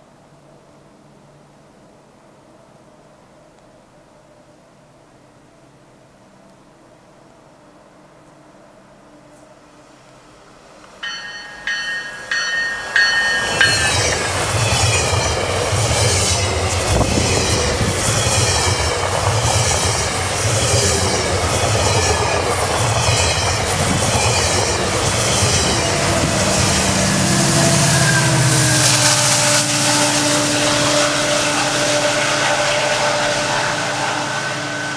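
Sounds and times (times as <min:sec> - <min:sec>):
train passing rumble: 0:05.9 - 0:34.9
train horn blasts: 0:09.0 - 0:10.4, 0:24.4 - 0:34.9.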